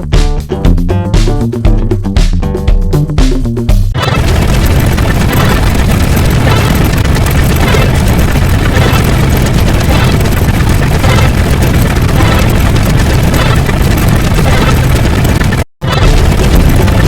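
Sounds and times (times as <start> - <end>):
music: 0.0 - 4.2
engine-like rumbling: 3.9 - 17.0.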